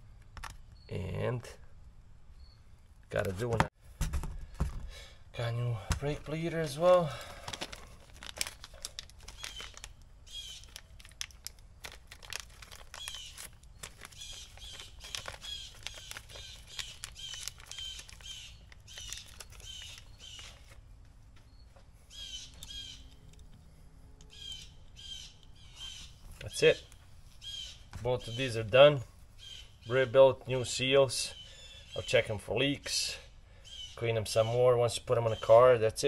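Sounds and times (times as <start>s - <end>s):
bird chirping: 0.6s - 1.3s, 2.3s - 2.9s, 9.3s - 11.0s, 12.8s - 20.8s, 21.4s - 32.4s, 33.6s - 35.8s
small parts clicking and tapping: 10.6s - 20.7s, 22.5s - 24.4s.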